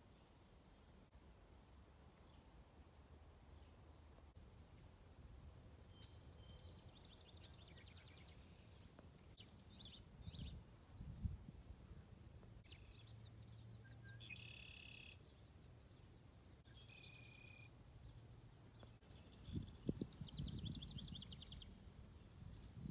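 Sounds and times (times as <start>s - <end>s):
small birds chirping and trilling: 5.9s - 22.9s.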